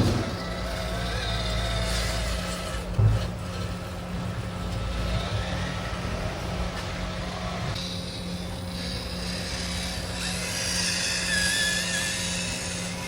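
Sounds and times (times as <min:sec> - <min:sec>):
small electric motor whining: 0:00.0 - 0:13.0.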